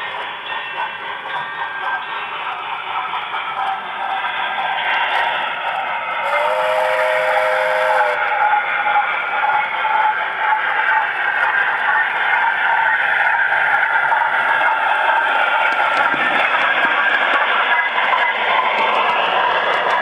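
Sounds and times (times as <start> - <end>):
model train running on track: 0.0 - 20.0
two-tone train whistle: 6.2 - 8.5.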